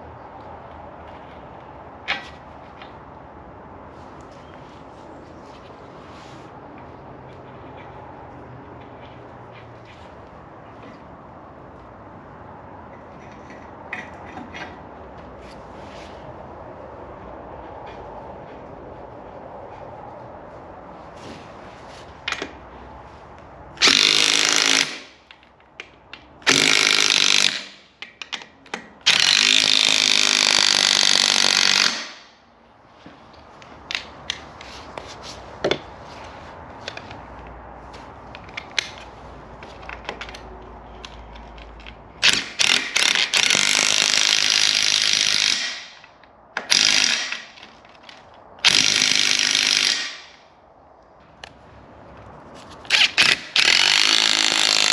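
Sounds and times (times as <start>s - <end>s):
sharp metal clicks and knocks: 23.8s - 32.3s, 38.3s - 50.5s.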